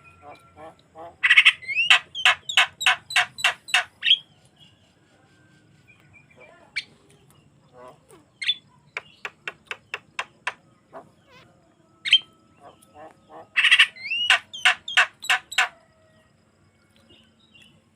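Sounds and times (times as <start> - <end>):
myna calling: 0.0 - 4.3, 7.7 - 15.8.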